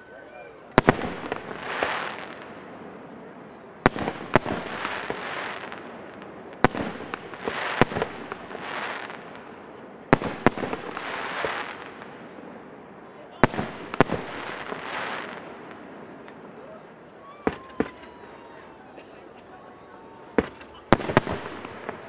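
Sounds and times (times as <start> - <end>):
firework crackle: 0.6 - 22.0.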